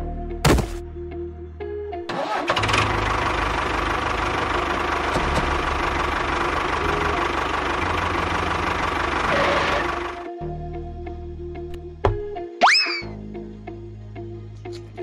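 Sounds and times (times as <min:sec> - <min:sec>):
engine cranking and starting: 0:02.1 - 0:10.3
tractor engine running: 0:02.1 - 0:10.3.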